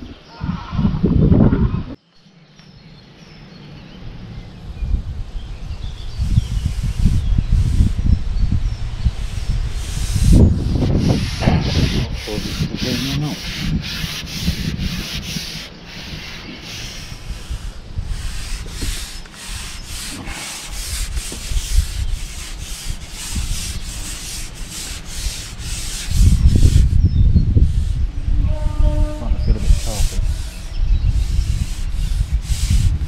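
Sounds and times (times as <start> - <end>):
wind rumble on microphone: 0.0 - 2.0, 2.8 - 33.0
rhythmic rubbing scraping: 6.1 - 33.0.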